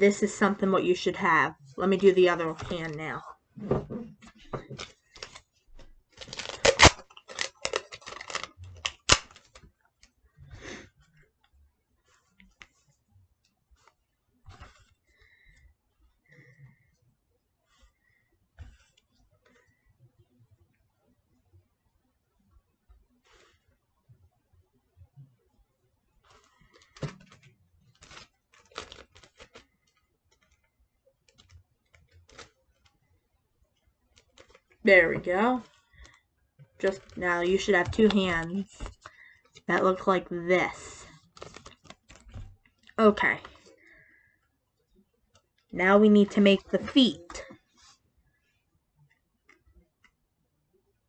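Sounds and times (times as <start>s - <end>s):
paper rustle: 4.0s - 9.7s, 26.2s - 30.6s, 36.8s - 40.1s, 40.8s - 42.5s
paper and tape crumpling: 4.3s - 5.5s, 6.1s - 9.7s, 26.3s - 30.6s, 31.3s - 32.9s, 36.8s - 42.5s.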